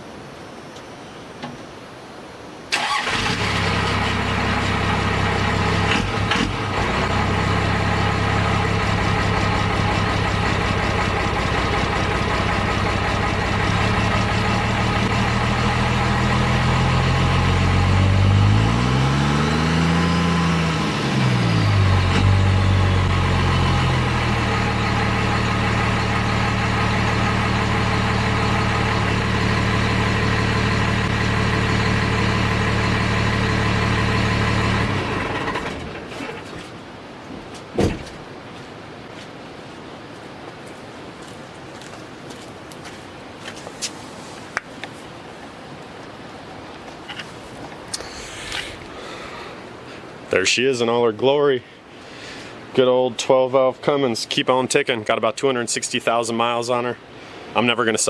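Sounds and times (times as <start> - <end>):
diesel engine starting and idling: 2.7 - 36.5.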